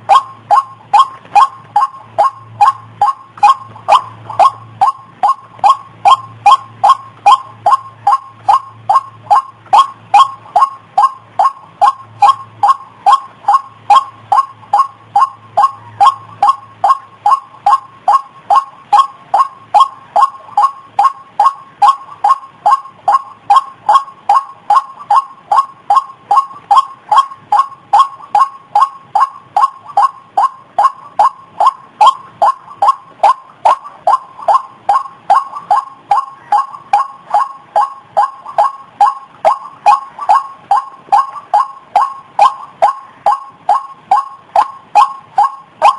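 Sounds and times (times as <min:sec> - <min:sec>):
waterhen calling: 0:00.0 - 0:45.9.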